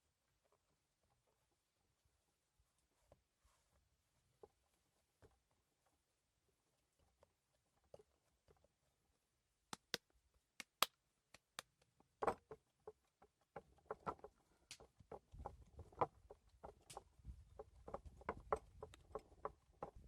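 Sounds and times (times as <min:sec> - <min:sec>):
sharp quiet clicks: 0:09.8 - 0:10.0, 0:10.6 - 0:11.6.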